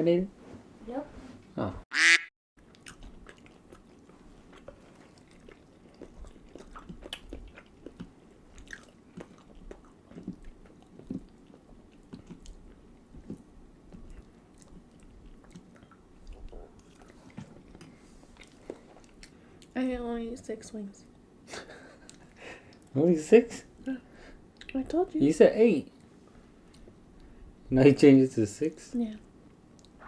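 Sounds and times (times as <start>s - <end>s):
chewing and biting: 2.6s - 19.7s.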